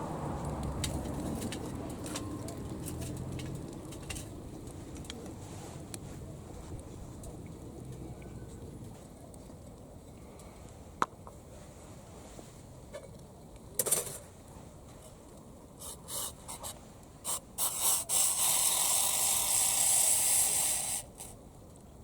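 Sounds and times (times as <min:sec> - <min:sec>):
hissing: 0:17.3 - 0:21.4.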